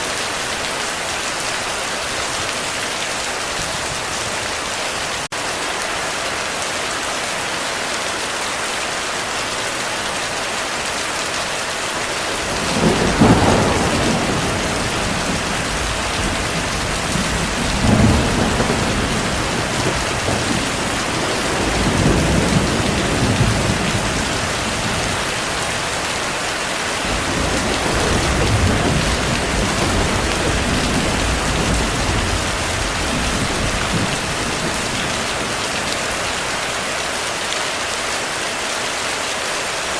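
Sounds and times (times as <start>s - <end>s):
heavy rain: 0.0s - 39.9s
rolling thunder: 12.3s - 25.9s, 27.0s - 36.2s.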